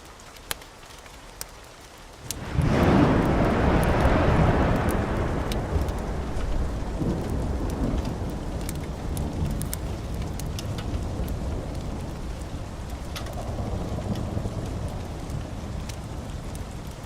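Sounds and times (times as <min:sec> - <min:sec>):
wood fire crackling and popping: 0:00.0 - 0:17.0
roar of flames: 0:02.2 - 0:17.0.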